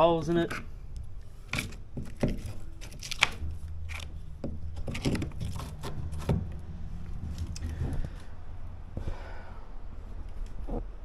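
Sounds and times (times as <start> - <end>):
steady low hum: 0.0 - 11.0
rotten wood breaking: 1.5 - 6.6.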